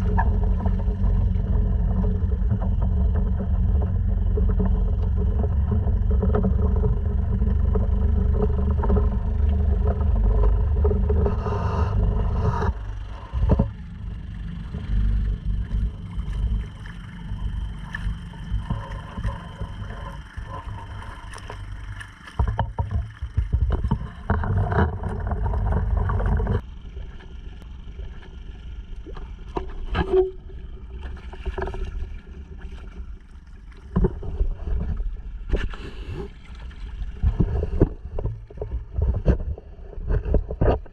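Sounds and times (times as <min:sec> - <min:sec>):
outboard motor running: 0:00.0 - 0:40.9
wind rumble on microphone: 0:00.0 - 0:40.9
water splashes: 0:14.4 - 0:39.6.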